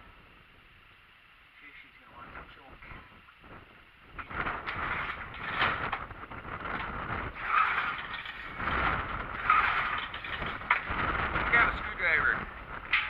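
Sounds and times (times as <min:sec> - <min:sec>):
tractor engine cranking: 0:04.5 - 0:13.0.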